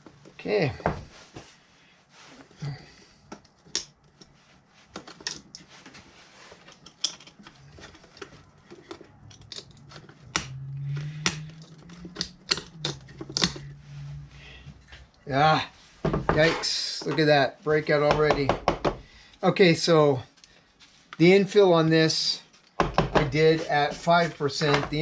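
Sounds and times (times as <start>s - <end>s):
low steady hum: 0.0s - 21.4s
hard objects clicking and tapping: 6.7s - 13.7s.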